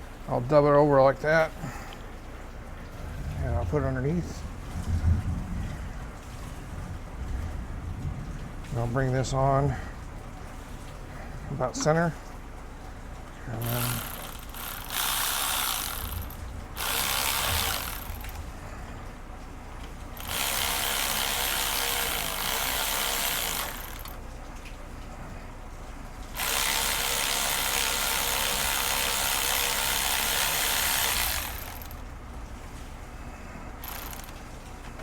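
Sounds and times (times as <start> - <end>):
cordless driver tightening clamp: 13.6 - 18.4, 20.2 - 24.2, 26.4 - 32.0, 33.8 - 34.4
screw clicking along metal band: 13.6 - 18.4, 20.2 - 24.2, 26.4 - 32.0, 33.8 - 34.4.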